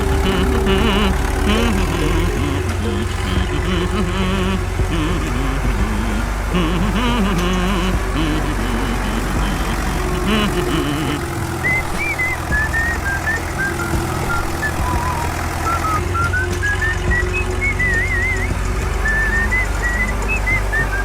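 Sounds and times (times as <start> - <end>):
vehicle engine rumbling: 0.0 - 21.0
person whistling a tune: 10.7 - 21.0.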